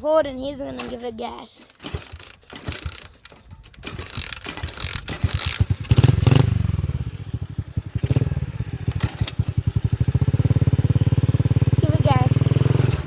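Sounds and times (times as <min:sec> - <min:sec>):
clattering: 0:00.7 - 0:06.3
dirt bike engine revving: 0:01.7 - 0:13.0.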